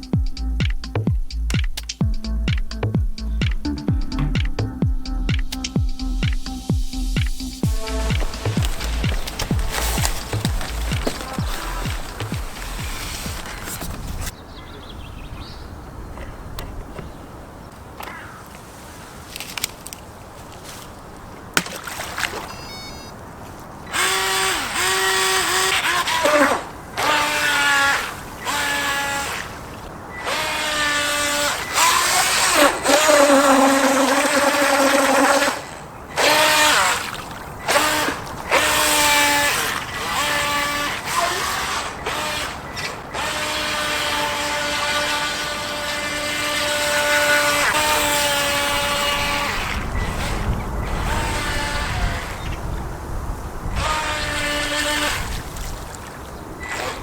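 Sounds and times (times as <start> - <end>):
electric motor whining: 7.6 - 14.3, 23.9 - 52.5, 53.8 - 55.5.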